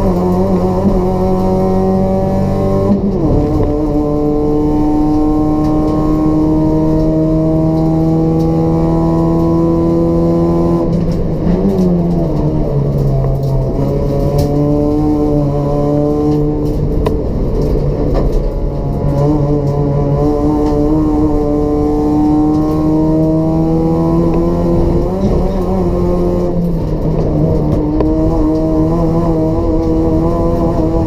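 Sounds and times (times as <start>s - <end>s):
car engine revving under load: 0.0s - 31.0s.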